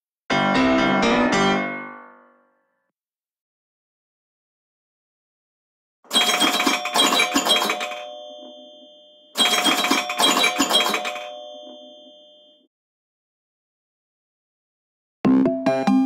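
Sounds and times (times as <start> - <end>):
phone ringtone: 6.1 - 12.7.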